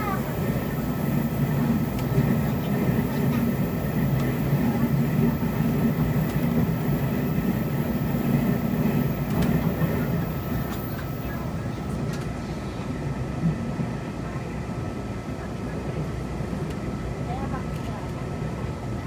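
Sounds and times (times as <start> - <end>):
train wheels rumbling: 0.0 - 12.4.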